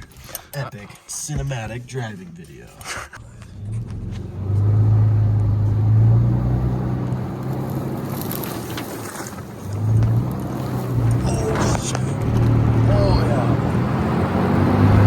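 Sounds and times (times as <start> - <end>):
car engine accelerating: 3.2 - 15.0.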